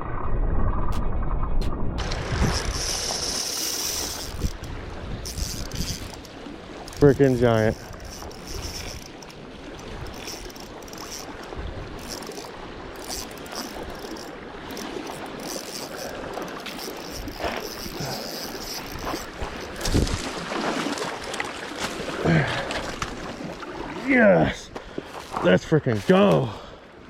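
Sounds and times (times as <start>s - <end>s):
wind rushing over microphone: 0.0s - 6.2s, 18.8s - 20.4s
water washing at shoreline: 2.0s - 27.0s.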